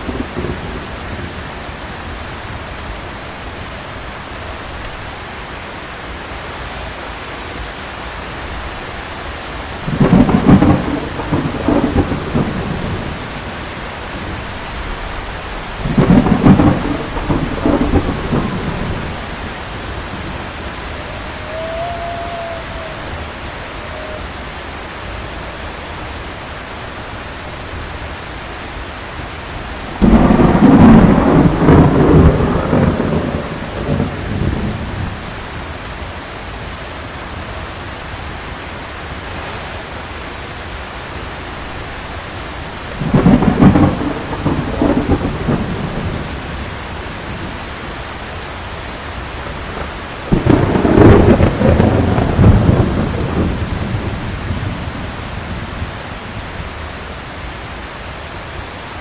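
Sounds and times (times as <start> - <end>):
rolling thunder: 0.0 - 3.0, 9.8 - 24.6, 29.6 - 35.8, 42.8 - 47.8, 49.2 - 56.7
heavy rain: 0.0 - 59.0.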